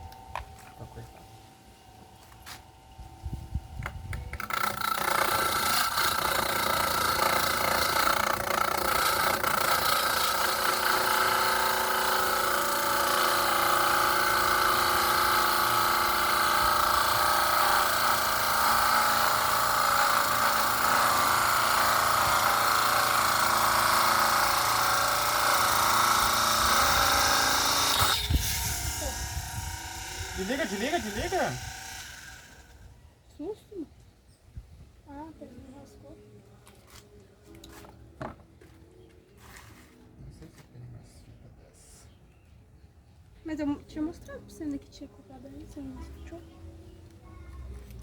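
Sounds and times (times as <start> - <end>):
power tool whining as it cuts: 3.8 - 32.8.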